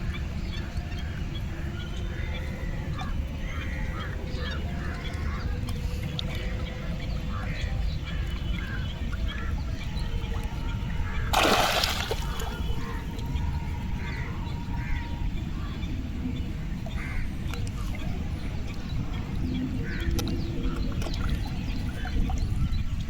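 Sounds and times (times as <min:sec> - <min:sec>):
waterfowl calling: 0:00.0 - 0:15.8
splash in water: 0:11.2 - 0:13.0.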